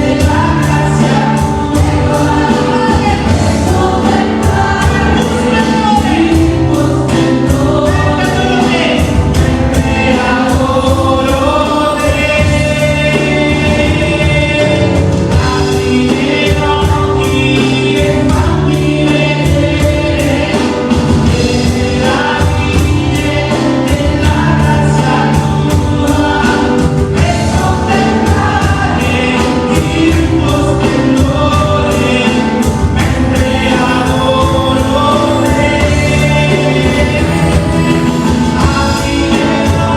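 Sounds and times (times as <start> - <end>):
band with steady beat: 0.0 - 39.9
group of voices singing: 0.0 - 39.9.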